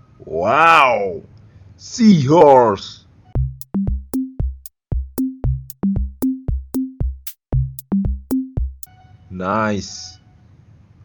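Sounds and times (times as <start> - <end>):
deep kick drums: 3.4 - 8.9
hi-hat ticks: 3.4 - 8.9
low synth bass notes: 3.4 - 8.9.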